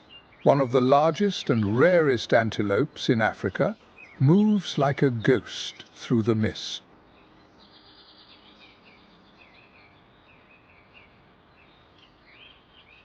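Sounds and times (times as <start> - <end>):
low background hiss: 0.0 - 13.0
faint bird chirps: 7.1 - 13.0.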